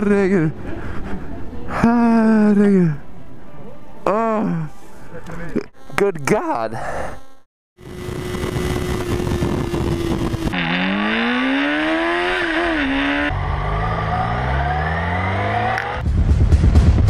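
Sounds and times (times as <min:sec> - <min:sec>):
motorcycle engine revving: 0:07.8 - 0:16.0
wind noise: 0:08.0 - 0:10.6.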